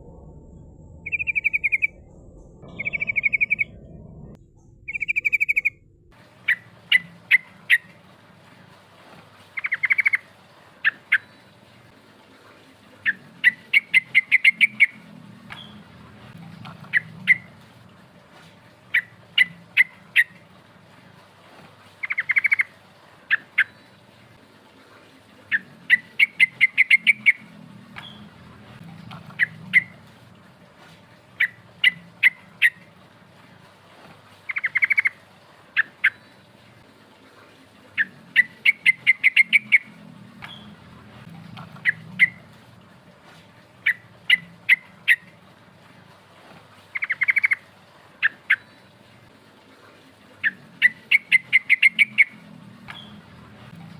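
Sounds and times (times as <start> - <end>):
bird chirping and trilling: 1.0 - 8.0, 9.6 - 11.5, 13.0 - 15.9, 16.6 - 17.6, 18.9 - 20.4, 22.0 - 22.7, 25.5 - 28.3, 29.0 - 30.0, 31.4 - 32.8, 34.5 - 35.2, 35.8 - 36.4, 38.0 - 42.6, 43.8 - 45.3, 46.9 - 47.6, 50.4 - 53.3.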